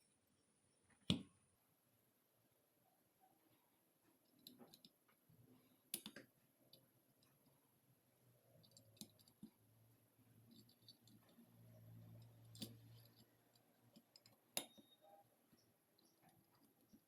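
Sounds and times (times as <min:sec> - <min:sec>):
metal parts and tools clicking: 0:08.6 - 0:09.5, 0:10.5 - 0:15.2.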